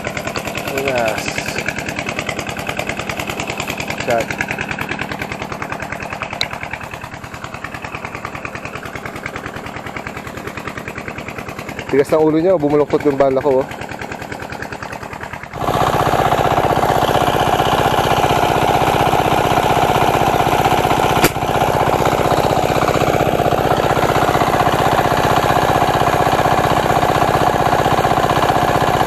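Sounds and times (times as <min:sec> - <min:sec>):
small engine running: 0:00.0 - 0:29.0
sharp click: 0:21.2 - 0:21.4.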